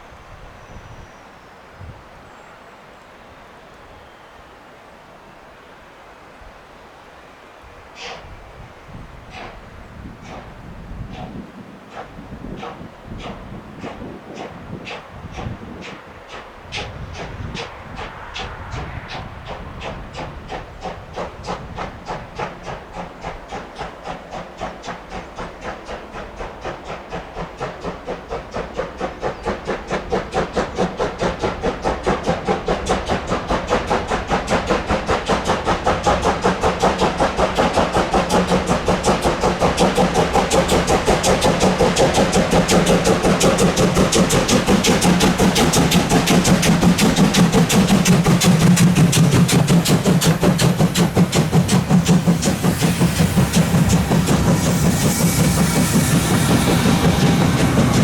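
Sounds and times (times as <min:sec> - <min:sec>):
model steam locomotive chuffs: 0:00.0 - 0:58.0
steady low hum: 0:35.1 - 0:58.0.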